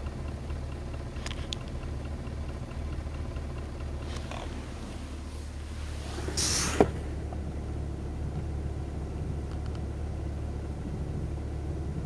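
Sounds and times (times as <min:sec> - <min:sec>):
car engine running with low hum: 0:00.0 - 0:12.0
short hiss: 0:04.0 - 0:07.2.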